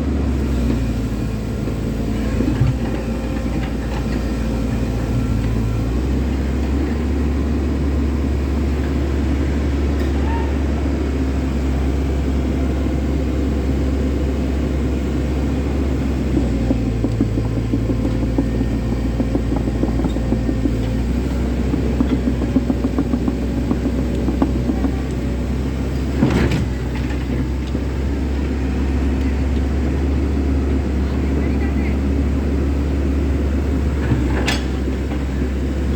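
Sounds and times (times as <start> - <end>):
excavator engine droning: 0.0 - 35.9
rapid clatter of knocks: 16.2 - 27.7.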